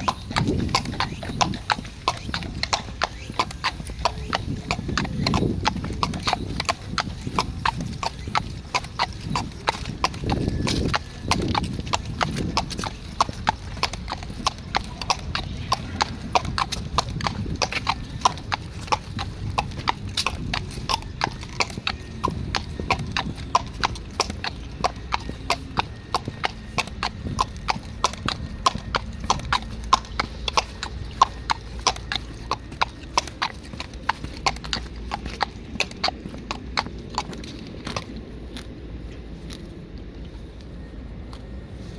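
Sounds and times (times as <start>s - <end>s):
horse hooves clip-clopping: 0.0s - 41.9s.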